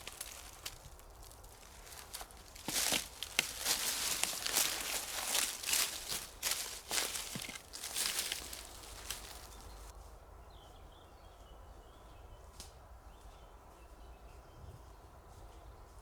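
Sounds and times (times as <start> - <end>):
footsteps crunching on leaf litter: 0.0 - 10.0.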